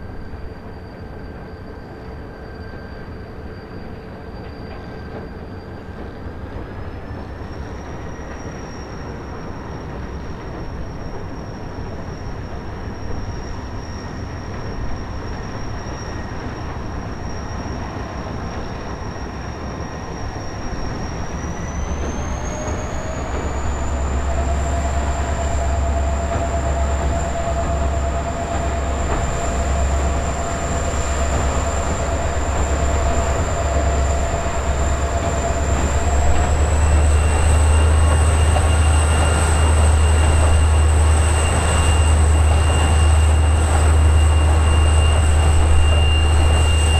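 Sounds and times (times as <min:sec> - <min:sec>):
diesel locomotive engine rumble: 0:00.0 - 0:46.9
turbocharger whine: 0:21.3 - 0:46.9.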